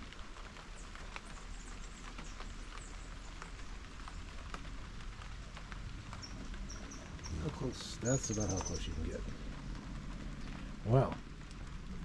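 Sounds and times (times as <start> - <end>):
light rain falling: 0.0 - 12.0
drips ticking on deck: 1.0 - 11.8
faint high bird chirps: 8.1 - 9.1.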